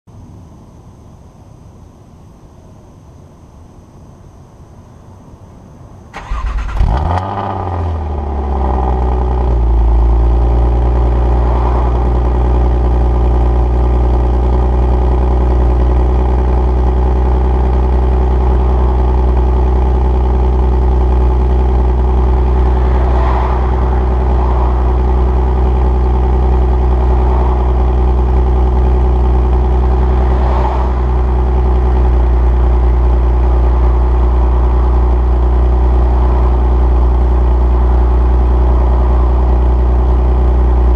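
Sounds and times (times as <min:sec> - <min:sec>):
car engine idling: 0:04.2 - 0:40.9.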